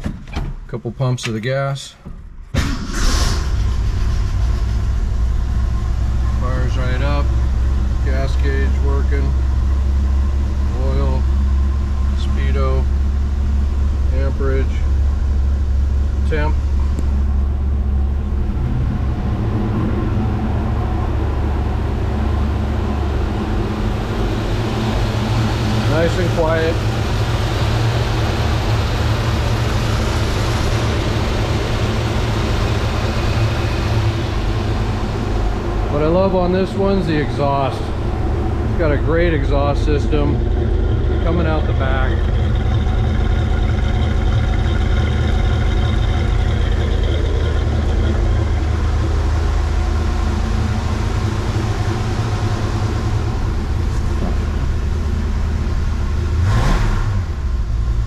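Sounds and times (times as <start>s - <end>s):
car engine idling: 1.0s - 58.0s.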